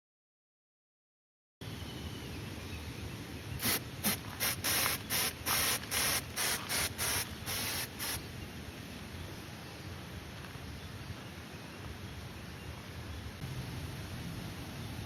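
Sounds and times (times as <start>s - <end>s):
steady background hiss: 1.6s - 15.0s
short spray hissing bursts: 3.6s - 8.2s.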